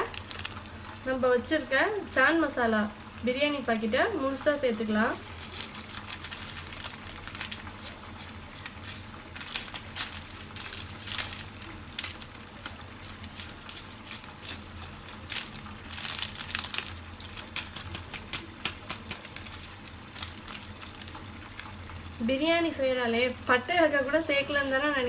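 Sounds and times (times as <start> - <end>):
plastic packet crinkling: 0.0 - 1.1, 3.7 - 22.1.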